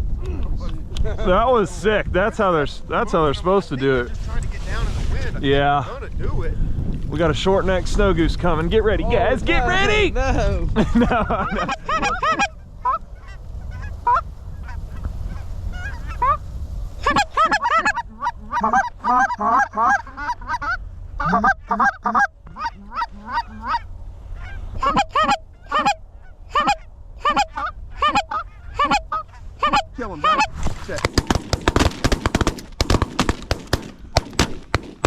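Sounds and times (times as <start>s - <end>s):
wind rumble on microphone: 0.0s - 35.0s
geese honking: 11.3s - 16.4s, 17.0s - 35.0s.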